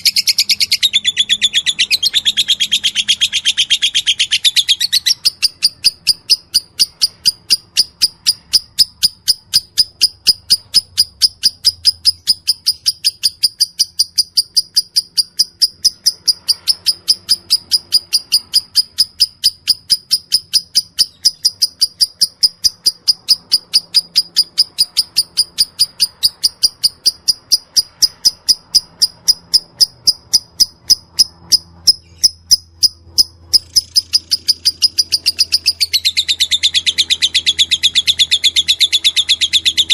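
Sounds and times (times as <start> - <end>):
bird rapid high chirps: 0.0 - 39.9.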